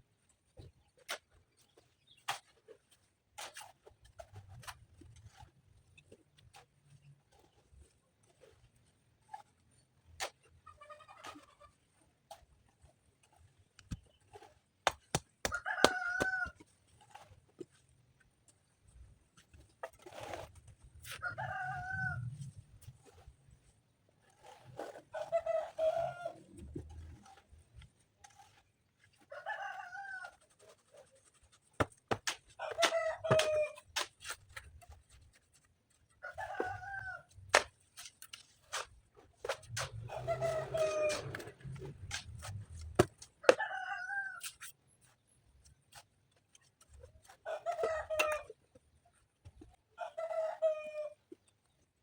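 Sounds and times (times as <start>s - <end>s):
chickens crowing and clucking: 15.4s - 17.2s, 21.0s - 22.6s, 29.2s - 30.7s, 32.6s - 33.9s, 36.2s - 37.4s, 39.5s - 44.6s, 47.2s - 48.6s, 49.9s - 51.2s.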